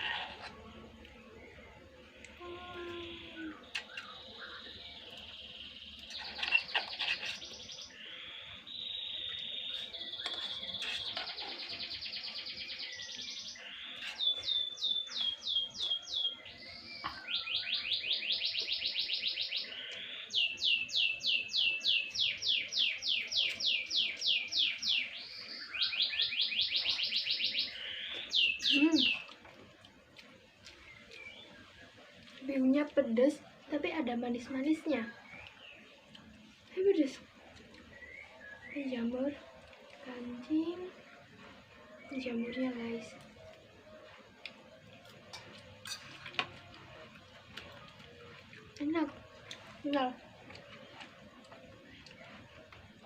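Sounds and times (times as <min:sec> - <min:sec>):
songbird trilling and warbling: 0:03.0 - 0:29.3.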